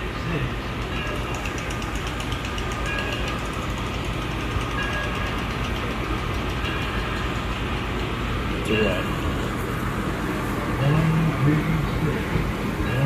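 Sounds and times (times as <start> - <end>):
low mechanical rumble: 0.0 - 13.0
faint voices: 8.6 - 13.0.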